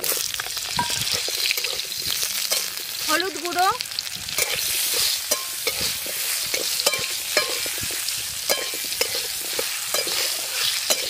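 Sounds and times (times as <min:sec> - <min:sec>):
food sizzling in hot oil: 0:00.0 - 0:11.0
metal spatula scraping a pan: 0:04.3 - 0:11.0.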